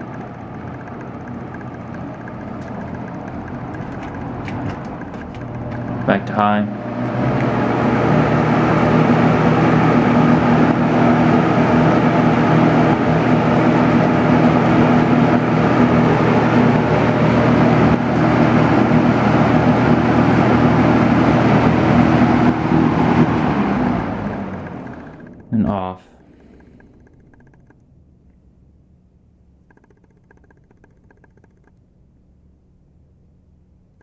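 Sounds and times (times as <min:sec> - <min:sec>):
box fan air rush: 0:00.0 - 0:27.7
low motor hum: 0:00.0 - 0:34.0.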